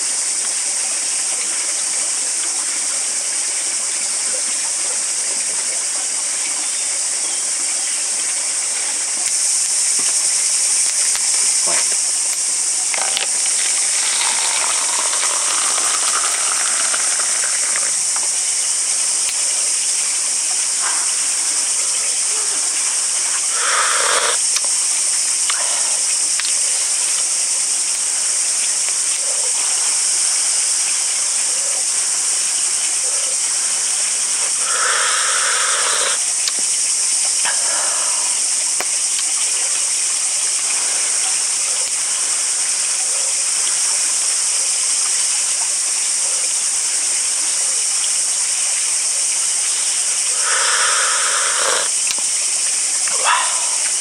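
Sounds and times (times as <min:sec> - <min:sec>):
high-pitched hiss: 0:00.0 - 0:54.0
animal calls: 0:23.1 - 0:24.4, 0:34.3 - 0:36.2, 0:50.3 - 0:51.9, 0:53.0 - 0:54.0.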